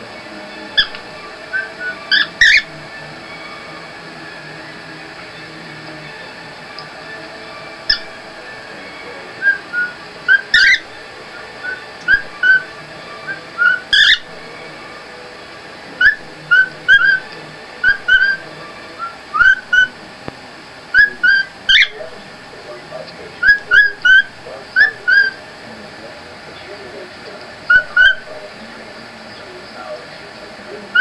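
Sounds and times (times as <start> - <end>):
harsh bird calls: 0.0 - 31.0
bird whistled chirps: 0.7 - 3.6, 6.8 - 14.3, 16.0 - 20.0, 20.9 - 22.0, 23.4 - 25.4, 27.7 - 28.3.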